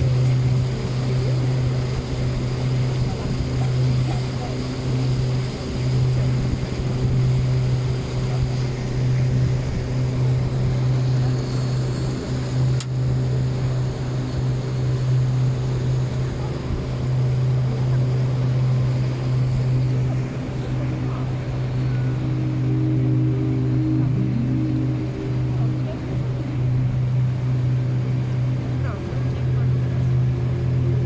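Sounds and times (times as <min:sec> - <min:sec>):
boat engine droning: 0:00.0 - 0:31.0.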